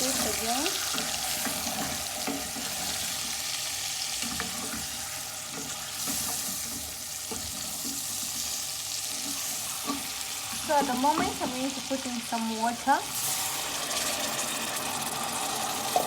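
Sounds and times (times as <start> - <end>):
spoon stirring and scraping: 0.0 - 11.4
onions sizzling in hot oil: 0.0 - 16.0.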